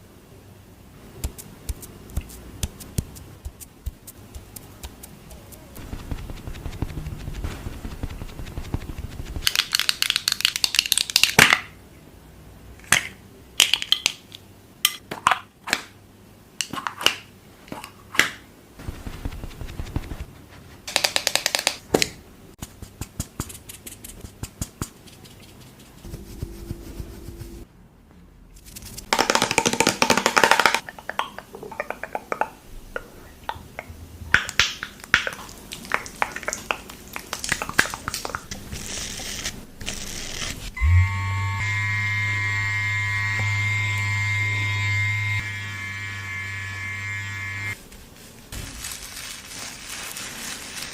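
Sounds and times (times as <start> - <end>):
short rustling hissing bursts: 18.8 - 20.9
taps and clicks on containers: 29.2 - 32.5.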